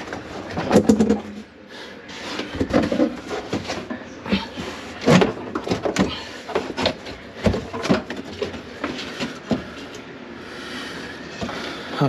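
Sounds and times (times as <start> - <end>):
knocks and clatter in wooden cabinet: 0.0 - 1.4, 2.5 - 9.7.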